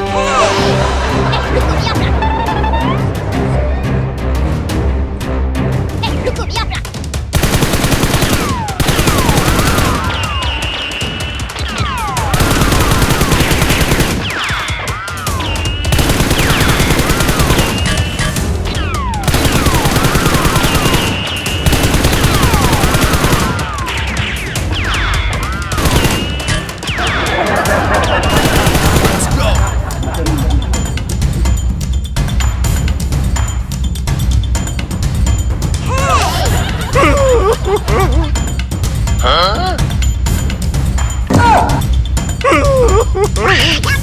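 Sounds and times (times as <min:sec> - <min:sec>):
music: 0:00.0 - 0:44.0
automatic gunfire bursts: 0:07.4 - 0:10.9, 0:12.2 - 0:14.5, 0:15.9 - 0:18.4, 0:19.2 - 0:24.1, 0:25.7 - 0:26.7, 0:28.2 - 0:29.4.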